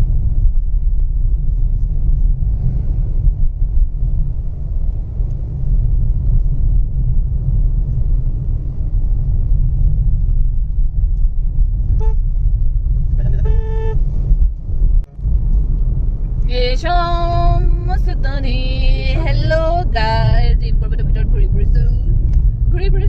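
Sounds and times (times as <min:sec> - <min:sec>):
car driving rumble: 0:00.0 - 0:23.0
vehicle horn honking: 0:12.0 - 0:12.4, 0:13.2 - 0:14.0.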